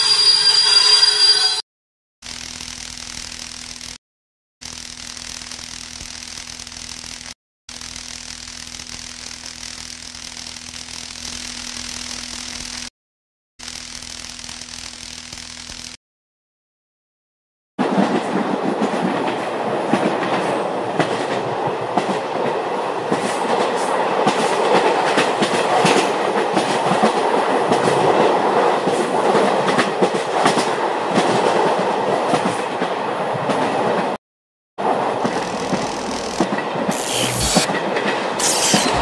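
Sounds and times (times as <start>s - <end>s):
train carriage rumbling on rails: 17.8s - 34.2s
brief high hisses: 36.9s - 37.7s, 38.4s - 39.0s.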